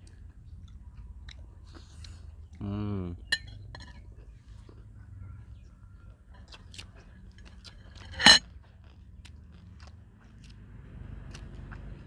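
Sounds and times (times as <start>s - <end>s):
close-up chewing: 0.0s - 2.6s, 3.5s - 12.0s
cucumber crunch: 6.4s - 10.6s.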